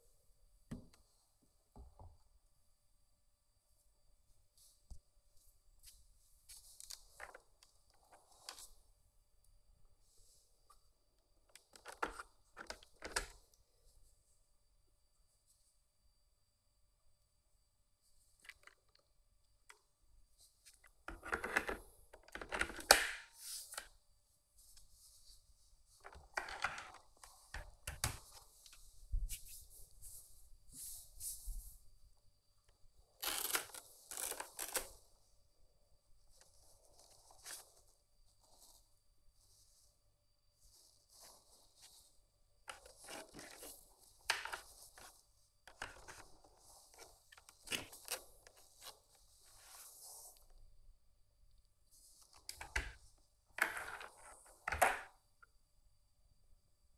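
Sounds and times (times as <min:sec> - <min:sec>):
objects being handled: 0:40.6 - 0:50.6.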